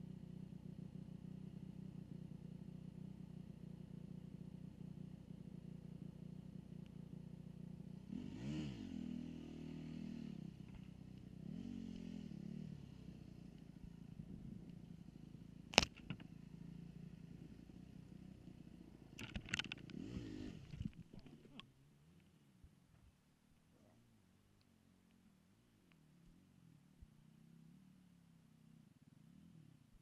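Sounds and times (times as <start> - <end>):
dirt bike engine revving: 8.0 - 10.7, 11.4 - 13.0, 19.7 - 20.8.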